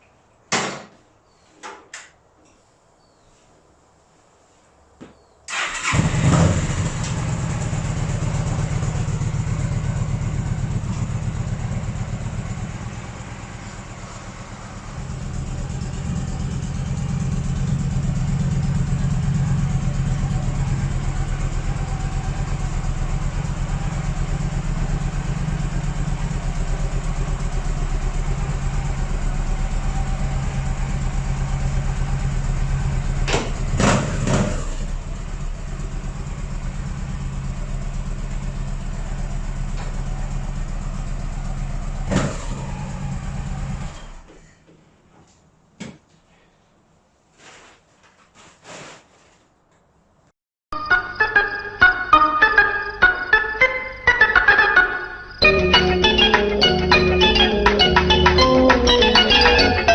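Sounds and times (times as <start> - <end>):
motorcycle engine idling: 5.5 - 44.3.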